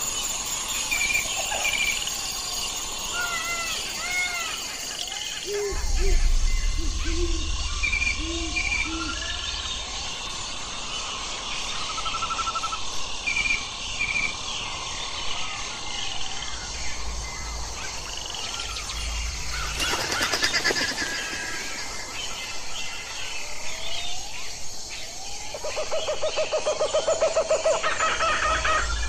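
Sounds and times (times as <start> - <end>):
small birds chirping: 0.0 - 29.0
low rumble: 5.7 - 11.5, 16.5 - 19.9.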